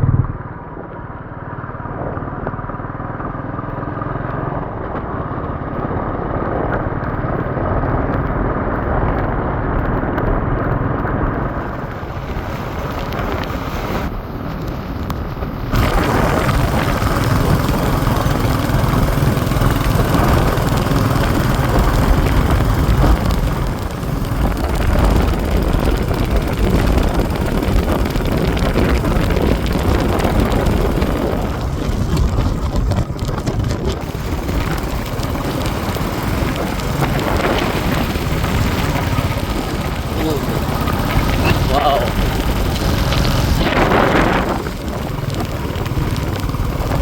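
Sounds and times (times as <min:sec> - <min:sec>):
motorcycle engine running: 0:00.0 - 0:47.0
wind rush on microphone: 0:00.0 - 0:47.0.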